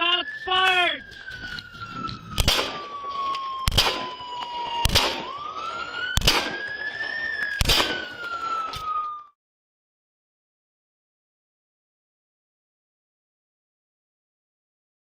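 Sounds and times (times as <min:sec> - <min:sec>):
police siren wailing: 0:00.0 - 0:09.4
sharp bangs: 0:01.6 - 0:09.0.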